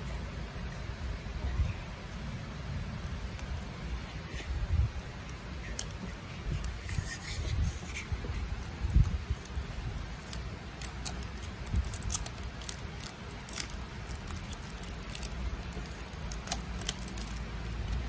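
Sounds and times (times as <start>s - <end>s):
toy packaging crinkling: 8.6s - 18.0s.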